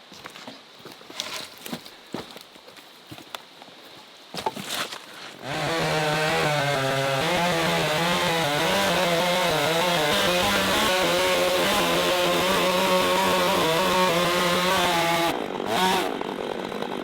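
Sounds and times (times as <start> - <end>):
chainsaw running at high revs: 5.4 - 17.0.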